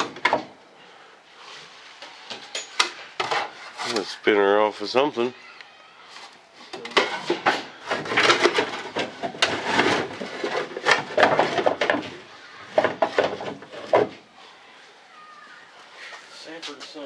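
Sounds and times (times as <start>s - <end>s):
scraping and shuffling: 1.2s - 4.5s, 6.0s - 17.0s
wooden objects knocking together: 6.8s - 14.2s.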